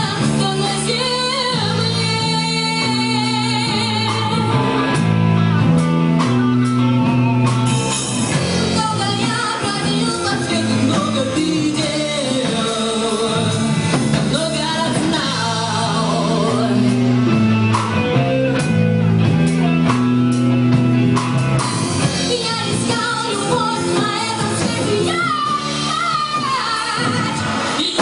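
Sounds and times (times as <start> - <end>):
woman singing lead vocal: 0.0 - 5.0, 8.5 - 17.4, 22.0 - 28.0
live rock band playing: 0.0 - 28.0.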